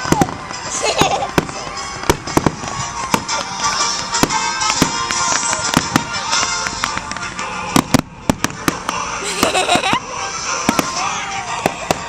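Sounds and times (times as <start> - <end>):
fireworks bangs: 0.0 - 7.2, 7.8 - 9.6
music playing: 0.0 - 12.0.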